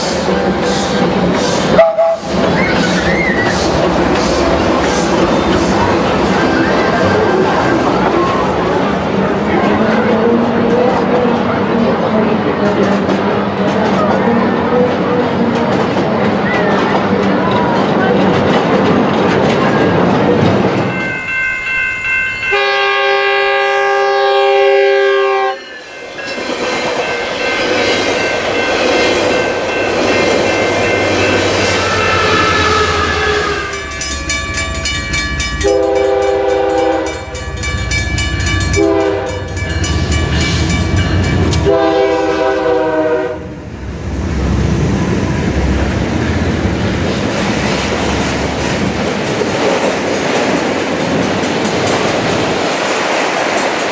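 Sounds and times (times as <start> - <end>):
train wheels clacking on rails: 0.0 - 11.8, 12.4 - 22.8, 25.7 - 43.0, 44.8 - 53.9
train air horn: 1.7 - 2.3, 22.5 - 25.6, 31.6 - 33.8, 35.6 - 37.3, 38.7 - 39.5, 41.6 - 43.6.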